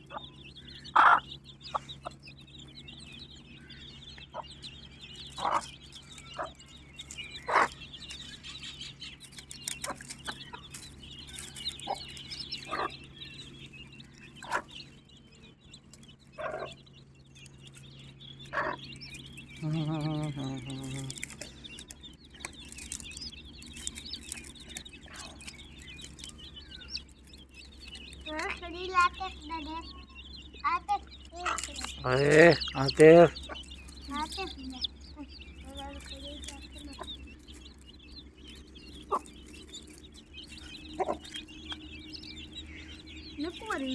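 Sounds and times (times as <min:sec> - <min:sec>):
chicks peeping: 0:00.0 - 0:43.9
hen clucking: 0:00.0 - 0:43.9.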